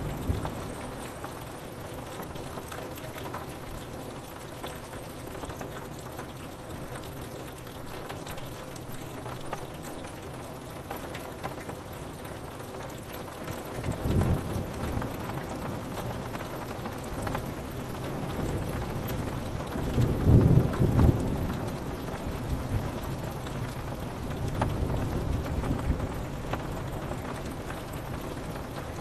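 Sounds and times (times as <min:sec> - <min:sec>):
rain pattering on window glass: 0:00.0 - 0:29.0
low thunder rumble: 0:17.9 - 0:29.0.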